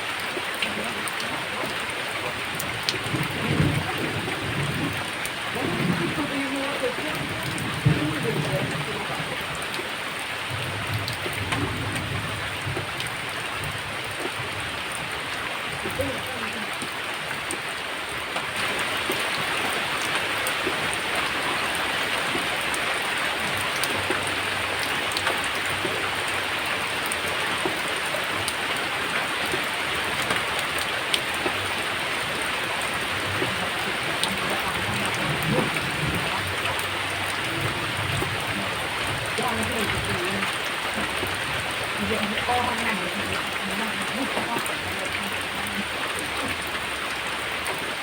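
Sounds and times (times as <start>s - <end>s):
rain falling: 0.0s - 48.0s
raindrop clicks: 0.0s - 48.0s.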